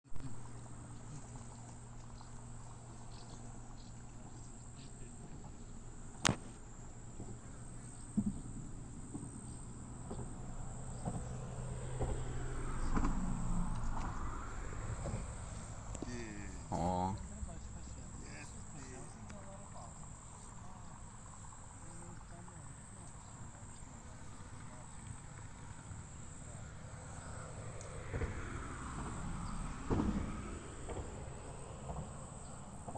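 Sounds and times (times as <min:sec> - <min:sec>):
insects chirring: 0:00.2 - 0:32.9.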